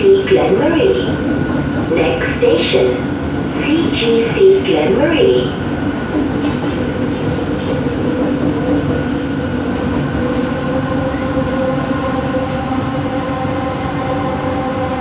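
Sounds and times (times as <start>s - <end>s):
train running gear rumble: 0.3s - 4.1s, 5.2s - 15.0s.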